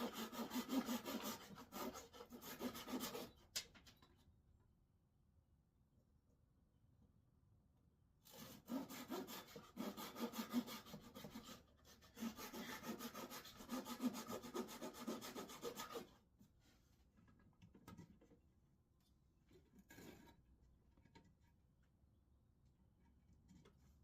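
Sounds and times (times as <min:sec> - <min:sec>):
hand saw cutting wood: 0:00.0 - 0:03.5, 0:08.3 - 0:16.1.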